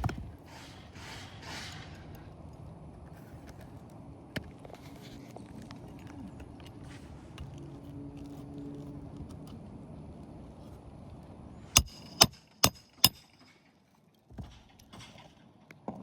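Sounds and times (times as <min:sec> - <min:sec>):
hammer striking nail: 0:11.8 - 0:13.4.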